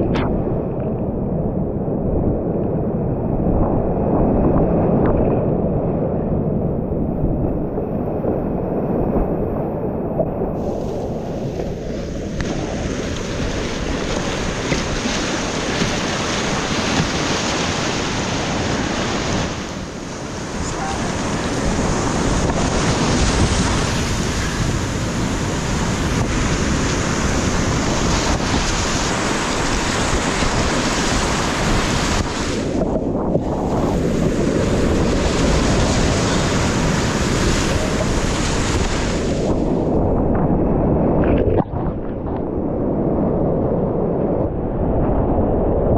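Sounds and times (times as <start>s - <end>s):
wind noise on microphone: 0.0s - 45.9s
whitewater rapids rushing: 10.6s - 25.8s.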